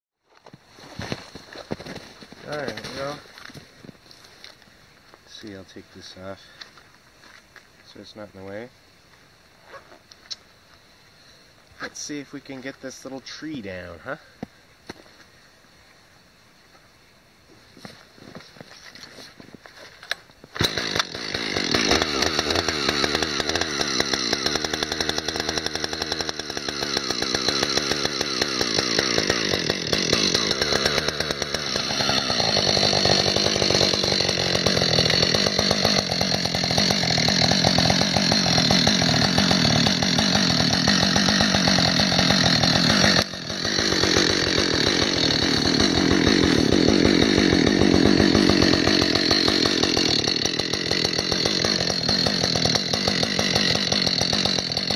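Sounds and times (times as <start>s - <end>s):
chainsaw cutting wood: 0.4s - 3.6s, 20.5s - 54.9s.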